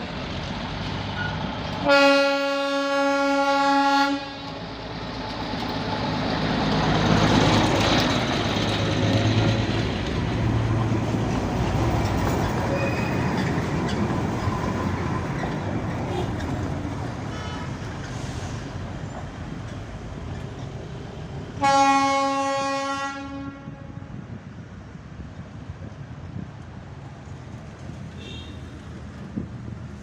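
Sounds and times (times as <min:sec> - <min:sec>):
diesel locomotive running: 0:00.0 - 0:30.0
train horn blast: 0:01.8 - 0:04.6, 0:17.3 - 0:17.8, 0:21.6 - 0:24.2.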